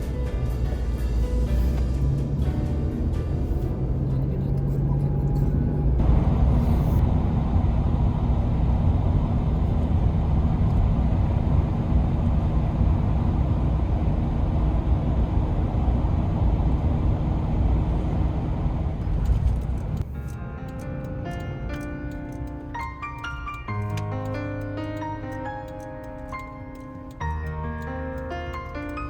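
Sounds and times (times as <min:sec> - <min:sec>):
engine and road rumble: 0:00.0 - 0:29.0.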